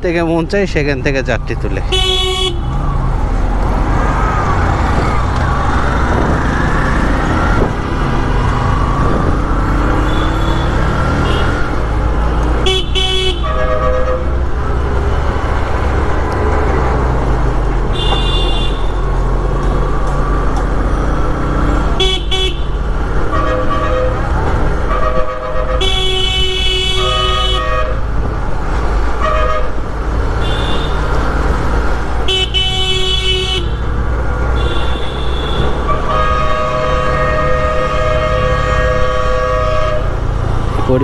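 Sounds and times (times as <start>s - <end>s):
motorcycle engine and road rumble: 0.0s - 41.0s
vehicle horns honking: 1.9s - 2.7s, 9.9s - 11.7s, 12.6s - 14.5s, 17.9s - 19.1s, 22.0s - 28.1s, 29.2s - 29.8s, 30.4s - 31.1s, 32.2s - 33.9s, 34.5s - 41.0s.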